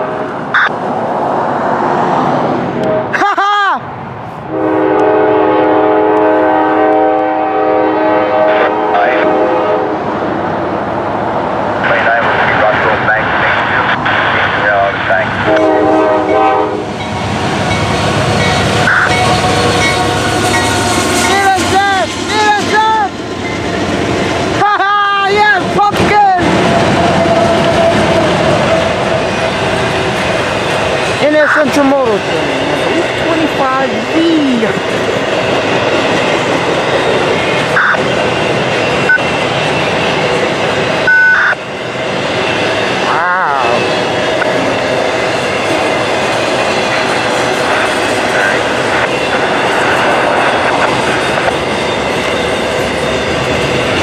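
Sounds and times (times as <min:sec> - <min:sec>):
freight train rumbling past: 0:00.0 - 0:03.2, 0:03.8 - 0:54.0
train air horn blast: 0:04.5 - 0:10.0, 0:15.4 - 0:16.9.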